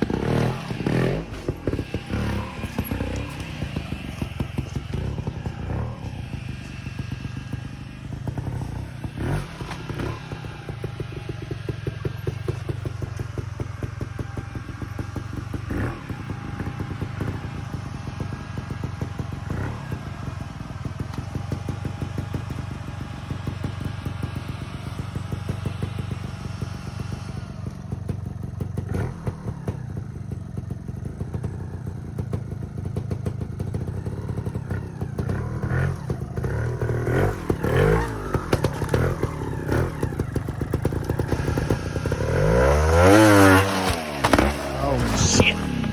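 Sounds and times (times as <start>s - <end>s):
motorcycle engine revving: 0.0s - 45.9s
clattering and scraping on rock: 43.3s - 45.9s.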